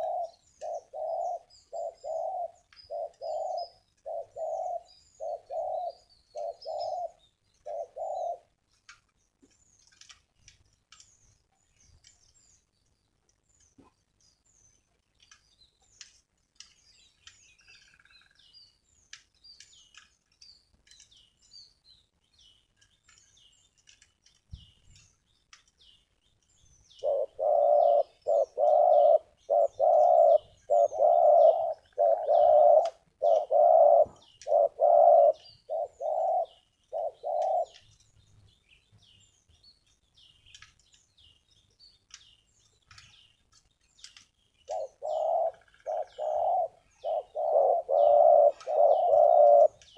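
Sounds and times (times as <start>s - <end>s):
dove cooing: 0.0s - 8.5s, 27.0s - 37.8s, 44.7s - 49.8s
small birds chirping: 0.0s - 49.9s.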